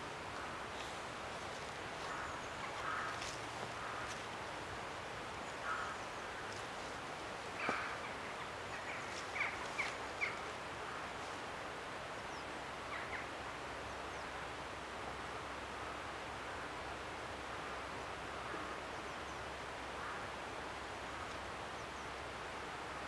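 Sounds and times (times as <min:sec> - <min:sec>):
steady hiss: 0:00.0 - 0:23.0
high bird calls: 0:00.7 - 0:04.3, 0:07.5 - 0:11.0.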